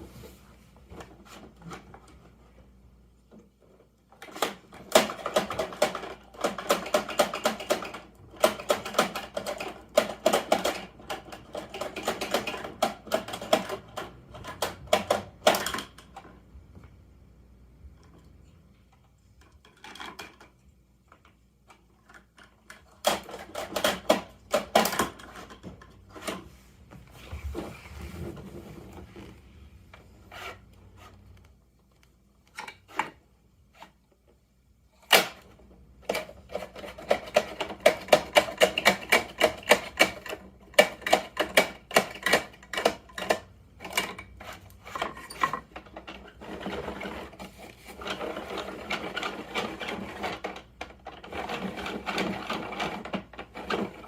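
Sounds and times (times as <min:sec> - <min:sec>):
plastic toy truck clicking and rattling: 0:03.3 - 0:16.5, 0:17.9 - 0:26.4, 0:30.0 - 0:54.0.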